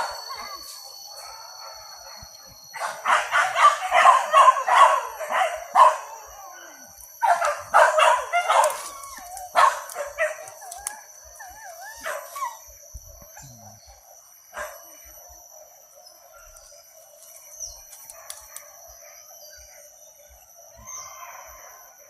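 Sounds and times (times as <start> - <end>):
dogs barking: 0.0 - 14.9.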